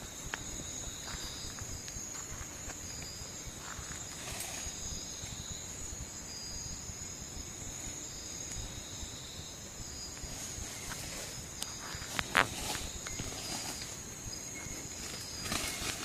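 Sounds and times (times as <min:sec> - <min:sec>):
faint rustle: 0:00.0 - 0:05.8, 0:09.9 - 0:16.0
crickets trilling: 0:00.0 - 0:16.0.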